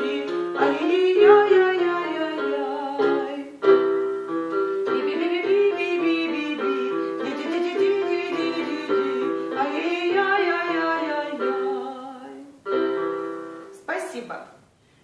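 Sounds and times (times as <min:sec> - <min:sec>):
person singing: 0:00.0 - 0:03.7, 0:04.8 - 0:12.6
piano playing vocal exercise: 0:00.0 - 0:13.8.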